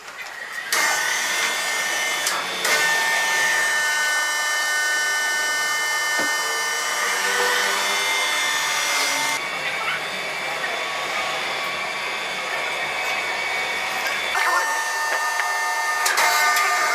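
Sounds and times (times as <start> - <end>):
power saw whining: 0.0 - 16.9.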